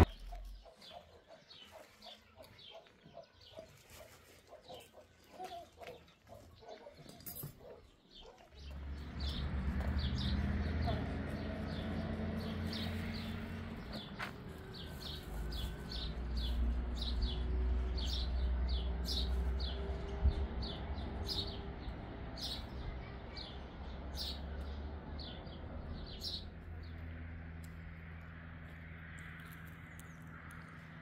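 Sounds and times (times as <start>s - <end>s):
low steady rumble: 0.0s - 0.6s.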